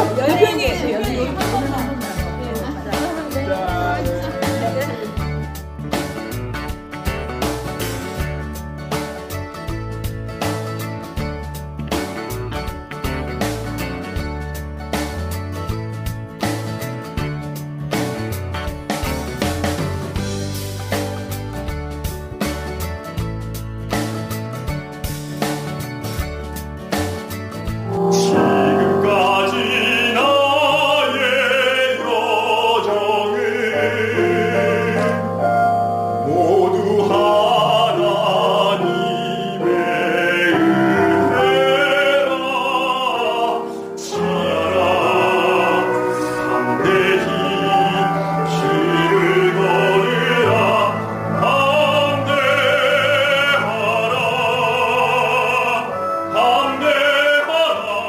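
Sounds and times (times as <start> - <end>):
operatic singing: 0.0 - 5.2, 27.8 - 58.0
instrumental accompaniment: 0.0 - 58.0.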